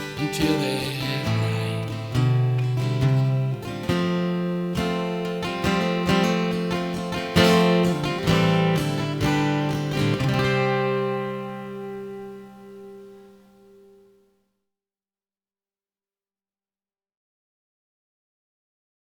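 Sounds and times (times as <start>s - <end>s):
acoustic guitar strumming: 0.0s - 14.2s.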